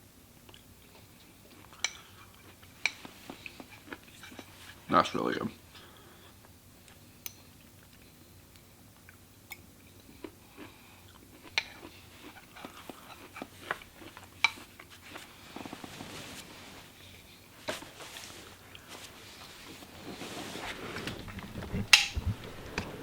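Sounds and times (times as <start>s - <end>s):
person chewing: 0.5s - 4.8s, 6.2s - 15.9s.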